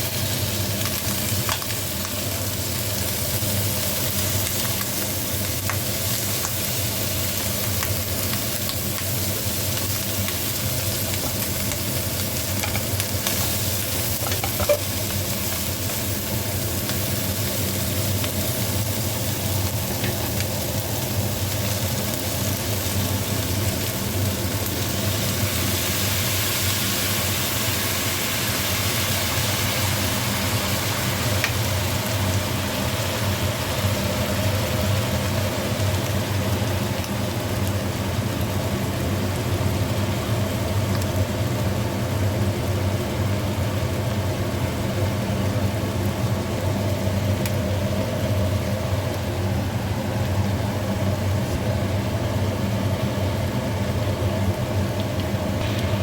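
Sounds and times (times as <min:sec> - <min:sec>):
food sizzling in a pan: 0:00.0 - 0:56.0
low hum: 0:55.5 - 0:56.0.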